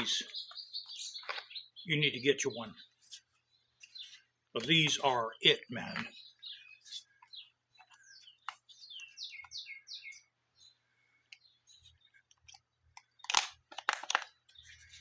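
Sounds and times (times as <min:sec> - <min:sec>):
small bird chirping: 0:00.0 - 0:15.0.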